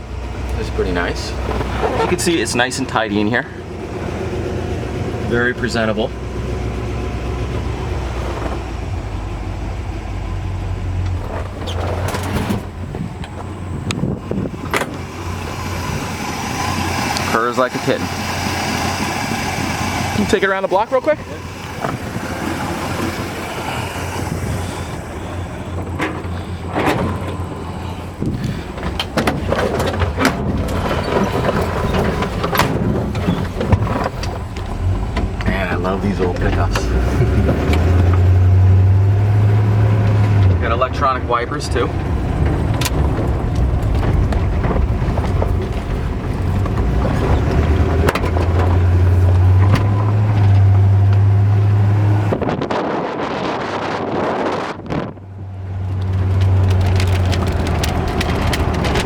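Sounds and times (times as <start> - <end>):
truck engine rumbling: 0.0 - 59.0
wind on microphone: 12.4 - 17.3, 18.0 - 31.2, 51.6 - 59.0
sharp clicks and knocks: 14.6 - 15.6, 56.0 - 59.0.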